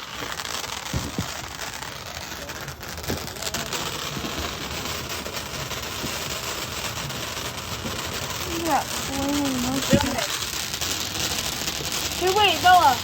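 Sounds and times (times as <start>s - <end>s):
firework hissing sparks: 0.0s - 13.0s.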